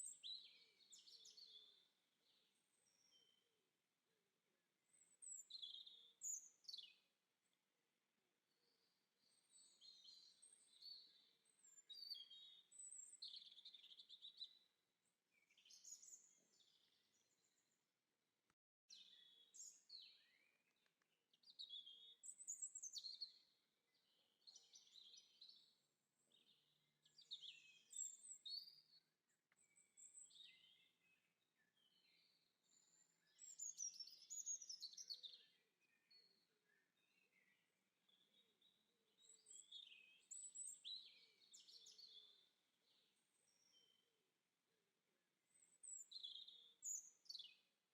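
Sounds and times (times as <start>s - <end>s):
faint songbird song: 0.0s - 47.9s.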